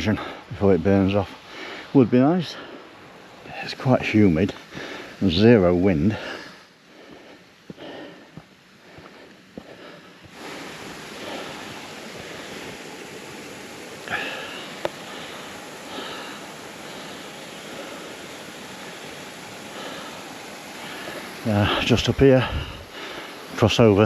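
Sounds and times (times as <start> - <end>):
person sniffing and breathing: 6.1 - 12.8, 14.1 - 18.3, 22.4 - 23.5
waterfall rushing: 10.3 - 24.0.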